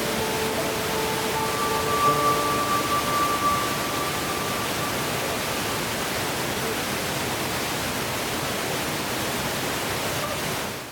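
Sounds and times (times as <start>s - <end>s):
held music tone: 0.0s - 6.2s.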